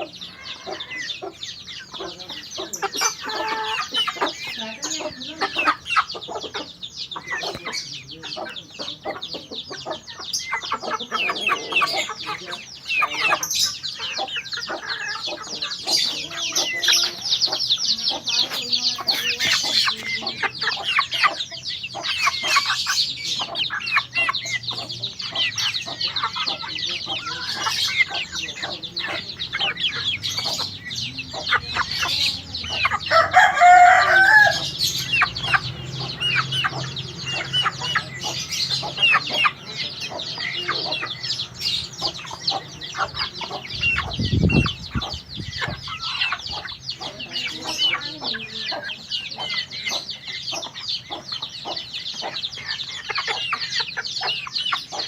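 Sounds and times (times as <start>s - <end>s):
bird twittering: 0.0s - 55.0s
rooster crowing: 33.0s - 34.9s.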